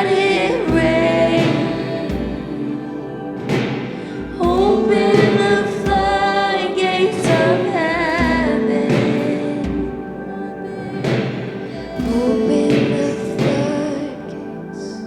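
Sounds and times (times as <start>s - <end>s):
person singing long notes: 0.0s - 15.0s.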